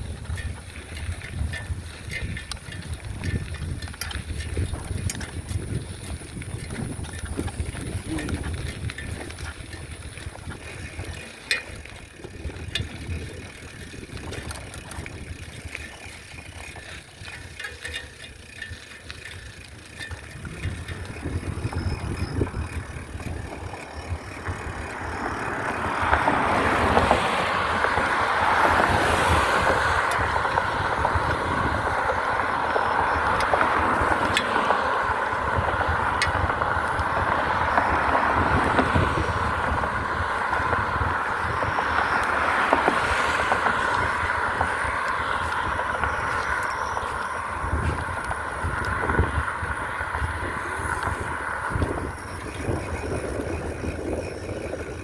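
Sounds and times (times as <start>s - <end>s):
scattered clicks: 0.0s - 27.2s, 32.7s - 34.9s, 41.3s - 55.0s
bicycle rolling noise: 0.0s - 55.0s
wind: 0.0s - 55.0s.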